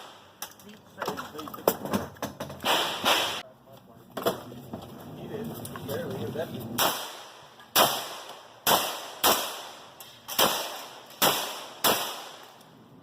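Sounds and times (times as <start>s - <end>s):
gunshots echoing: 2.6s - 3.4s, 6.8s - 12.6s.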